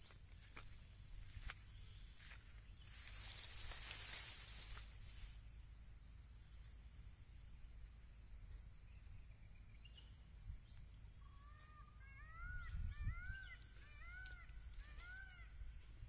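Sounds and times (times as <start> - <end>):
bird calling: 11.2 - 16.0.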